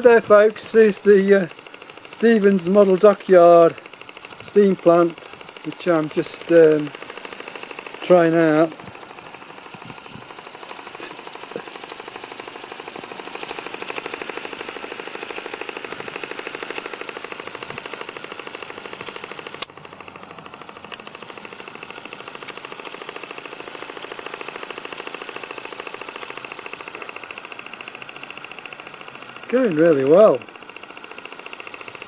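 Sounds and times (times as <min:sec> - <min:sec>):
model steam engine running fast: 0:00.0 - 0:32.0
sharp click: 0:19.0 - 0:20.1.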